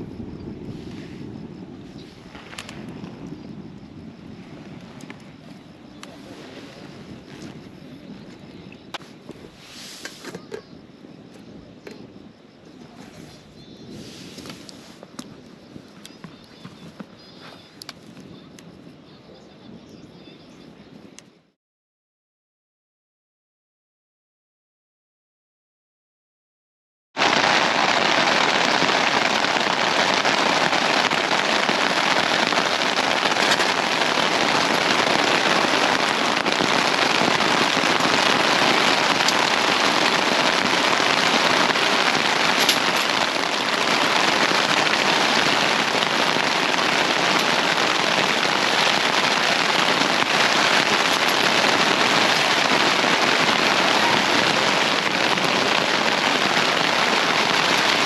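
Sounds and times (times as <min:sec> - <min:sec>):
heavy rain falling: 0:00.0 - 0:10.9, 0:27.2 - 0:58.0.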